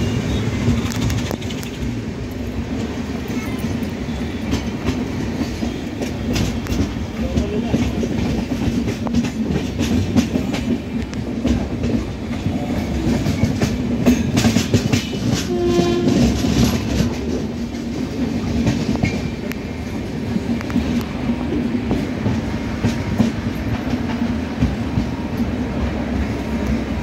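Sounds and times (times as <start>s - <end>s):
train rumbling: 0.0s - 27.0s
wheels clacking over rail joints: 0.3s - 27.0s
train horn: 15.2s - 16.8s.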